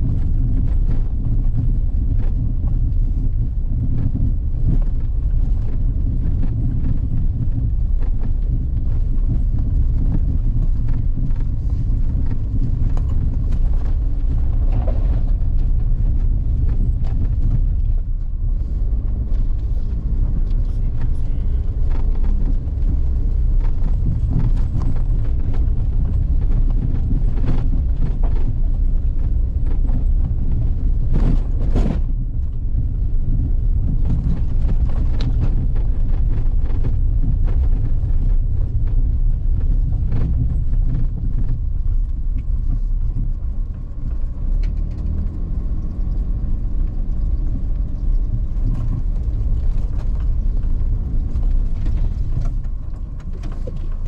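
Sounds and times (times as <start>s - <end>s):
knocks and rattles: 0.0s - 54.0s
vehicle rumbling on rough road: 0.0s - 54.0s.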